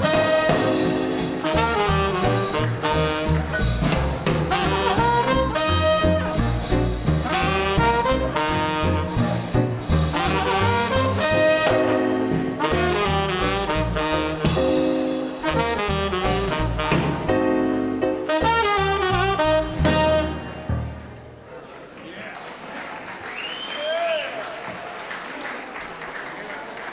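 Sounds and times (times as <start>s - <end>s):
saxophone: 0.0s - 6.6s, 7.2s - 17.6s, 18.2s - 20.7s
drums keeping a steady beat: 0.0s - 21.0s
trumpet: 0.0s - 21.0s
bass: 0.0s - 21.4s
piano: 0.0s - 21.5s.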